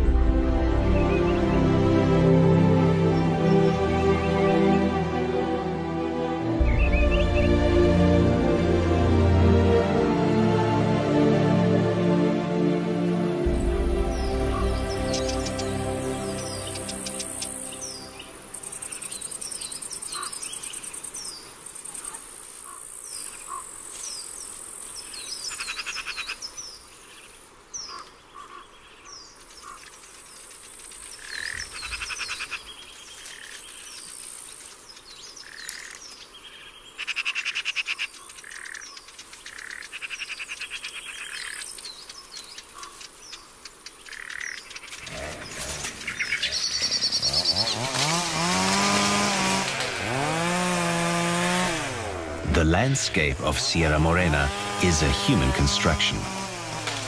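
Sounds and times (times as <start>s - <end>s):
birds chirping: 0.0s - 9.0s, 12.0s - 57.0s
loud rising sound: 0.0s - 19.6s, 47.2s - 57.0s
high insect buzz: 13.4s - 28.1s, 29.6s - 52.4s, 55.7s - 57.0s.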